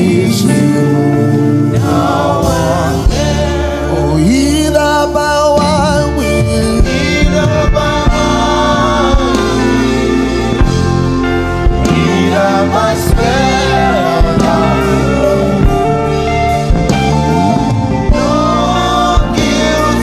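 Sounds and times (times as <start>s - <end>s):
gospel singing: 0.0s - 20.0s
instrumental backing: 0.0s - 20.0s
steady drum beat: 1.4s - 4.8s, 5.6s - 20.0s.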